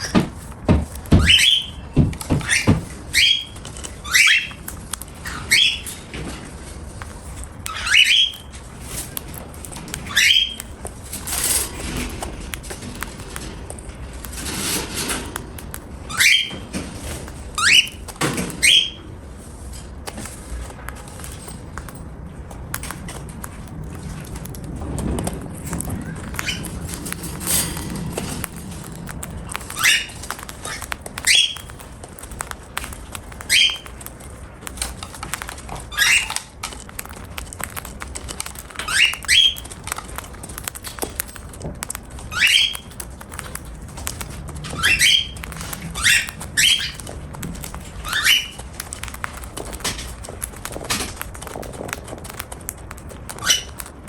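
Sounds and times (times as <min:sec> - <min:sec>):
cockatiel chirping: 0:01.0 - 0:06.1, 0:07.4 - 0:09.2, 0:09.9 - 0:11.6, 0:14.6 - 0:19.1, 0:25.8 - 0:41.2, 0:41.9 - 0:53.9
beak cracking seed: 0:19.9 - 0:54.0.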